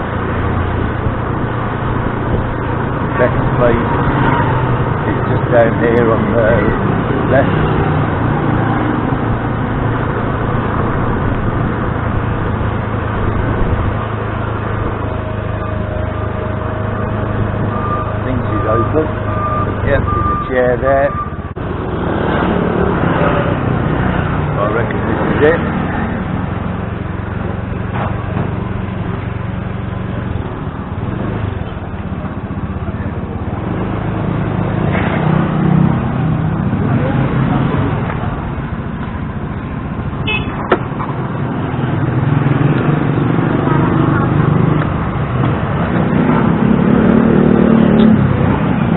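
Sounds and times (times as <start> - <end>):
road and traffic noise: 0.0 - 48.9
motor scooter engine hum: 35.5 - 48.9.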